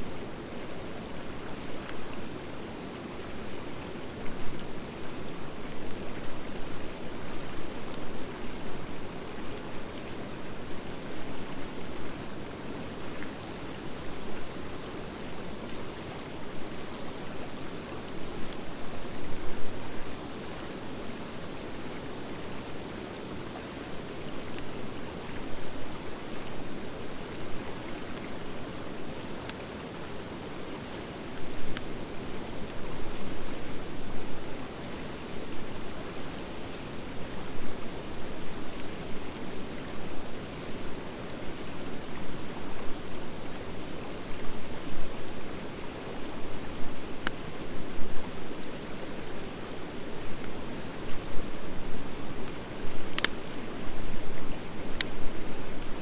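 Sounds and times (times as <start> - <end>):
wood fire crackling and popping: 49.4 - 53.6.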